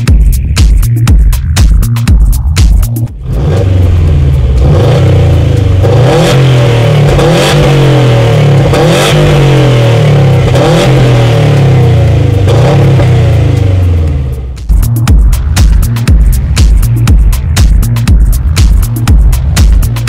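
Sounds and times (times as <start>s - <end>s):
car engine revving hard: 3.1s - 14.4s.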